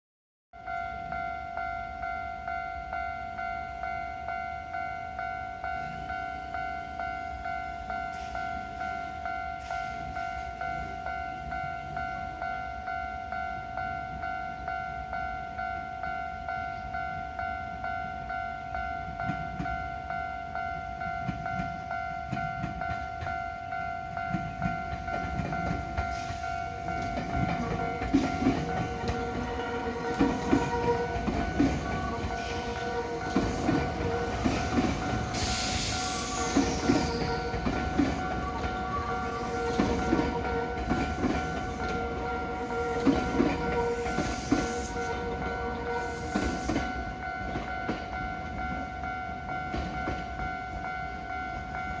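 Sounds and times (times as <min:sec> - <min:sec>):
crossing warning signal: 0:00.6 - 0:52.0
train wheels clacking: 0:24.2 - 0:48.8.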